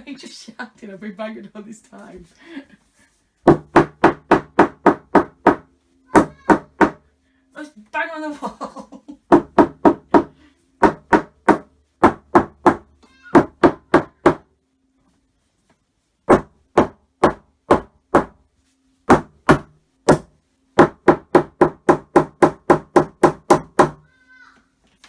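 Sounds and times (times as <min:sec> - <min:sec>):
banging on a wall: 0:03.5 - 0:07.1, 0:09.3 - 0:14.5, 0:16.3 - 0:18.4, 0:19.1 - 0:24.1.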